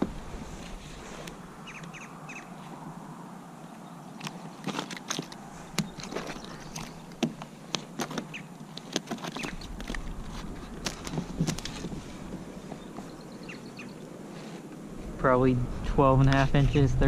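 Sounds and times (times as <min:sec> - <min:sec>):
low rumble: 0:14.9 - 0:17.0.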